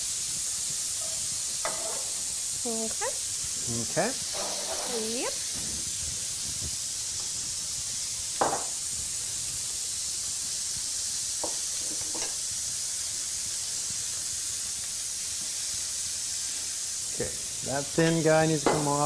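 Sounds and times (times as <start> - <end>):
meat sizzling in frying pans: 0.0 - 19.0
utensils knocking on pans: 1.0 - 2.2, 4.3 - 5.2, 11.4 - 12.4, 18.1 - 19.0.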